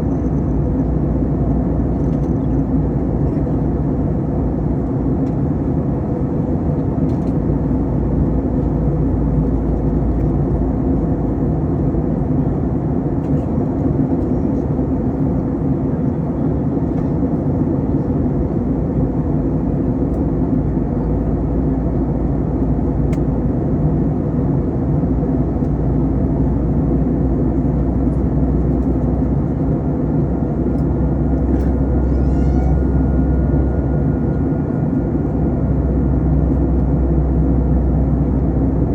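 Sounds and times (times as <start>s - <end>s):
airplane cabin drone: 0.0s - 38.9s
low steady hum: 0.0s - 38.9s
faint high tone: 31.7s - 34.5s.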